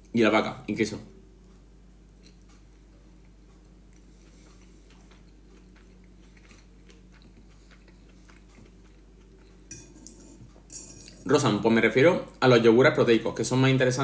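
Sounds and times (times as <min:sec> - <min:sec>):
person chewing food: 0:01.3 - 0:11.3.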